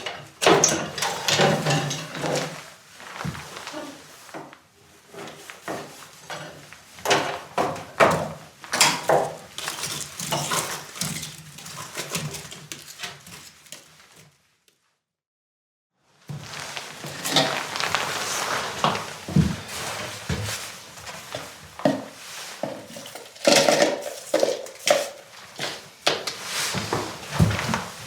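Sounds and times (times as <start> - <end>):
pots and utensils clinking: 0.0 - 2.6, 5.2 - 14.2, 21.4 - 26.4.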